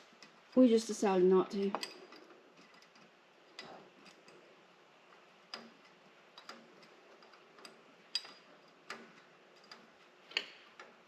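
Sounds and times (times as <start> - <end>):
hand tools clicking and tapping: 1.7 - 4.5, 5.1 - 11.0.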